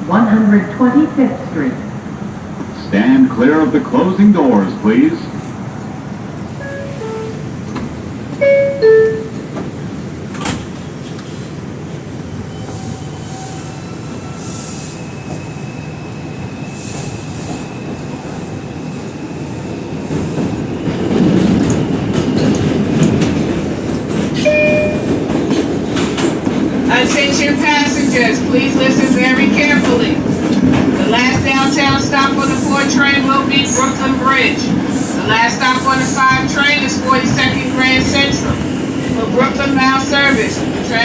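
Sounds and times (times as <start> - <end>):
train wheels on rail: 2.1 - 41.0
two-tone door chime: 6.6 - 7.4, 8.4 - 9.5, 24.5 - 25.2.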